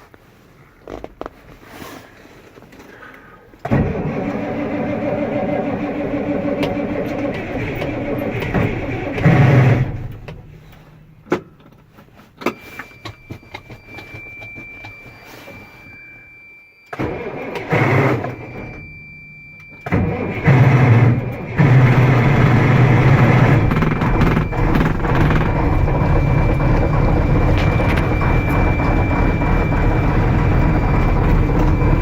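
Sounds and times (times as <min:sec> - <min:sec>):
starter cranking diesel engine: 0:03.6 - 0:10.9, 0:16.9 - 0:18.8, 0:19.8 - 0:32.0
clicks: 0:21.3 - 0:32.0
high-pitched tone: 0:21.7 - 0:32.0.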